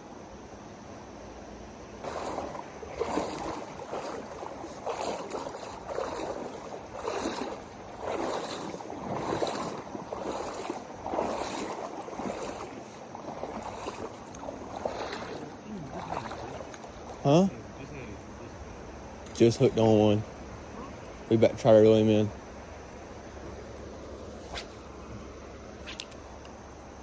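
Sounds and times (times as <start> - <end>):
flowing river water: 1.9 - 27.0
water sloshing and splashing: 2.0 - 17.8.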